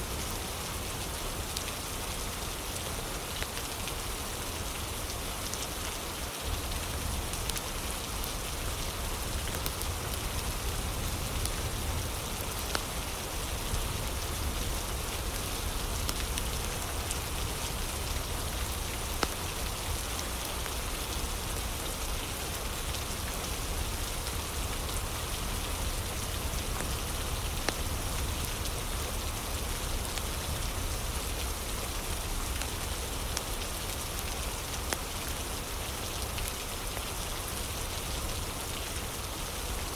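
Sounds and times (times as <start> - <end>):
steady rain falling: 0.0 - 39.9
wood fire crackling: 13.8 - 20.7.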